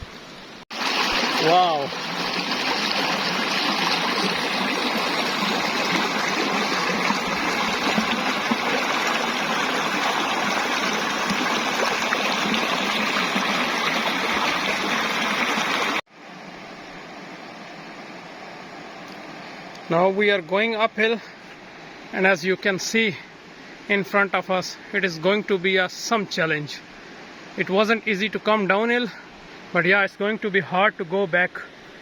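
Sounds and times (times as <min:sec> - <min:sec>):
rushing stream: 0:00.0 - 0:32.0
faint hiss: 0:16.2 - 0:32.0.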